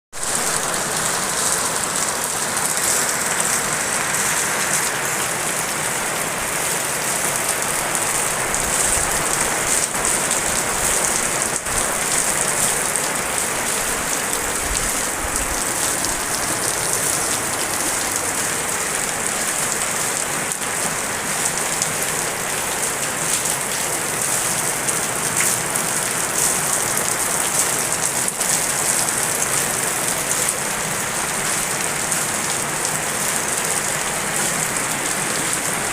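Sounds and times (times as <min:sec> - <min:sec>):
heavy rain falling: 0:00.1 - 0:35.9.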